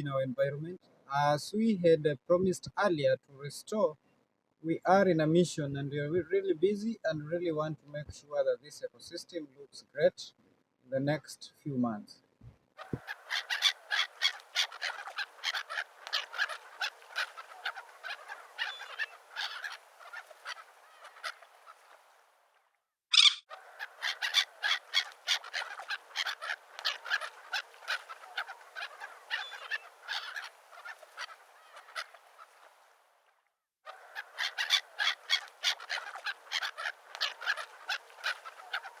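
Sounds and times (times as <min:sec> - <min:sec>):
flock of birds honking: 0:12.8 - 0:22.0, 0:23.2 - 0:32.7, 0:33.9 - 0:39.0
loud high bird call: 0:23.1 - 0:32.1.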